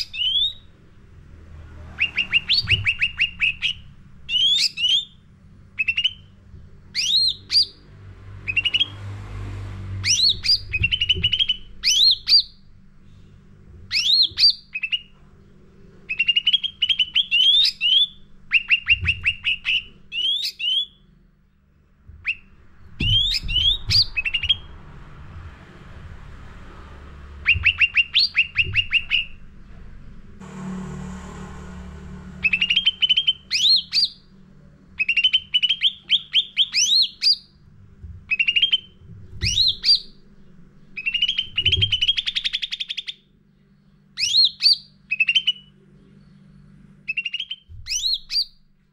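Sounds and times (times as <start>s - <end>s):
songbird whistling and chattering: 0.0s - 0.7s, 2.0s - 5.2s, 5.8s - 6.3s, 6.9s - 7.8s, 8.4s - 9.0s, 10.0s - 12.6s, 13.9s - 15.1s, 16.1s - 21.0s, 22.2s - 24.7s, 27.4s - 29.4s, 32.4s - 34.2s, 35.0s - 37.5s, 38.3s - 40.2s, 41.0s - 43.2s, 44.2s - 45.8s, 47.1s - 48.6s
faint low hum: 0.0s - 48.9s.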